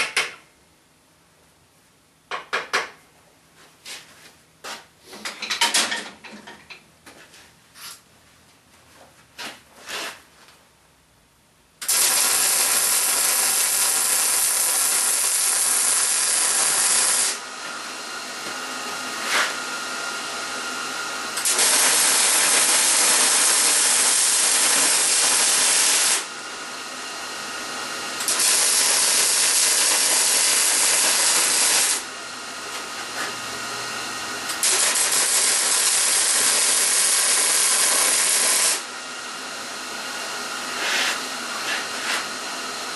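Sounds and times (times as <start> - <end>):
welding arc hissing: 11.8 - 17.4, 21.4 - 26.3, 28.2 - 32.1, 34.5 - 38.8.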